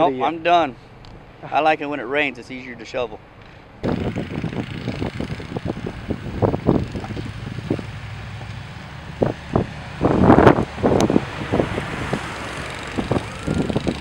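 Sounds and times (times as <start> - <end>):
engine running: 3.2 - 14.0.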